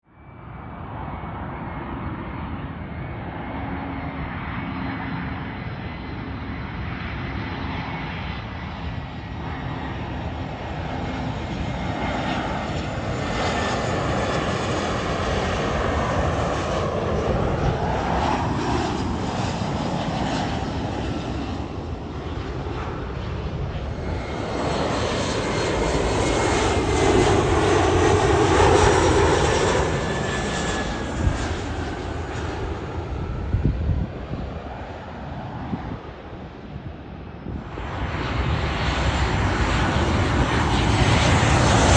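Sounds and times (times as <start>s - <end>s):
jet engines roaring past: 0.1s - 41.9s.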